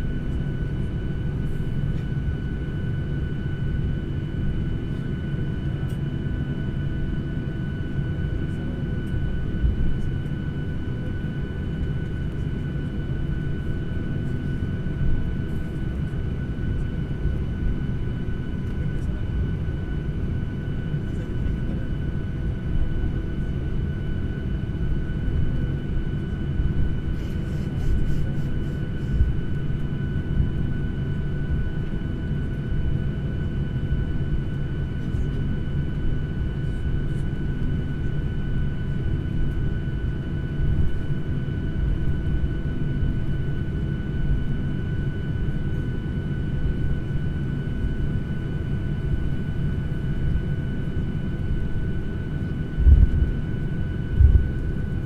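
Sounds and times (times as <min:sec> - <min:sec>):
airliner cabin rumble: 0:00.0 - 0:55.0
high jet whine: 0:35.9 - 0:55.0.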